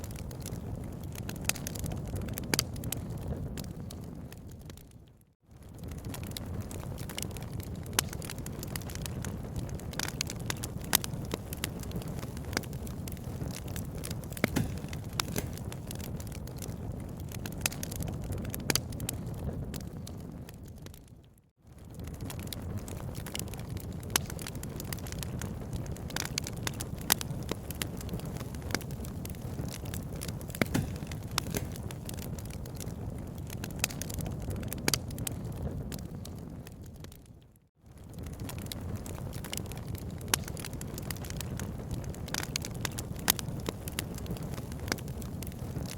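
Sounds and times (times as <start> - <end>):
wood fire crackling and popping: 0.0 - 45.9.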